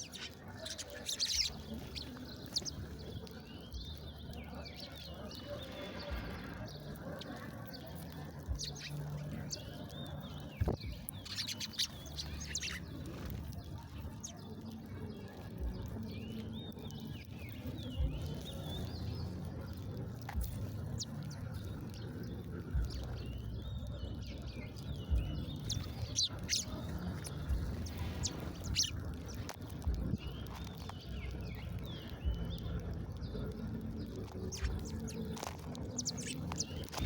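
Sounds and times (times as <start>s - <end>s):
small birds chirping: 0.0s - 37.0s
steady low rumble: 8.4s - 9.6s, 17.9s - 37.0s.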